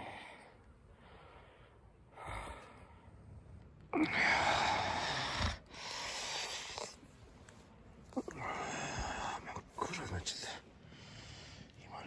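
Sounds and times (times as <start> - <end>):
man breathing and sighing: 0.0 - 3.3, 3.9 - 7.3, 8.0 - 11.8.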